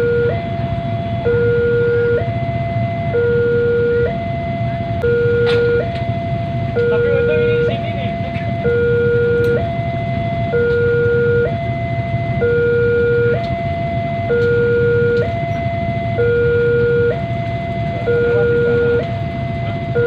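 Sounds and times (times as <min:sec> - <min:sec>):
low vehicle rumble: 0:00.0 - 0:20.0
two-tone electronic siren: 0:00.0 - 0:20.0.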